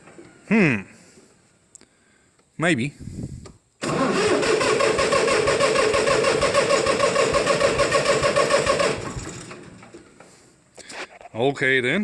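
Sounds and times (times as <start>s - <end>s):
tractor engine cranking and chugging: 3.8s - 10.7s.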